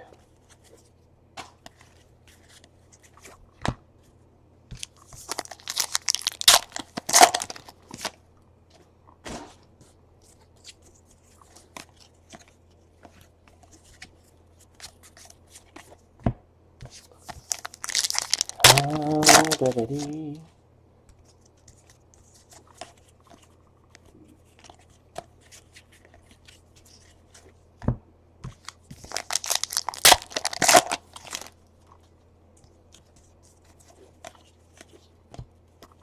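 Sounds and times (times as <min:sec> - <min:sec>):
plastic wrapper tearing and crinkling: 0:05.3 - 0:08.1, 0:17.4 - 0:20.2, 0:28.9 - 0:31.6.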